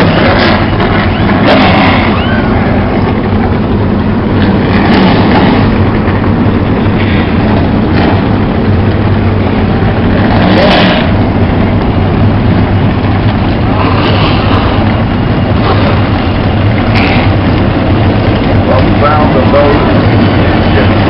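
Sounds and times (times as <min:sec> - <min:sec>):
engine revs: 0:00.0 - 0:03.2, 0:04.1 - 0:13.0
race car engines running: 0:00.0 - 0:21.0.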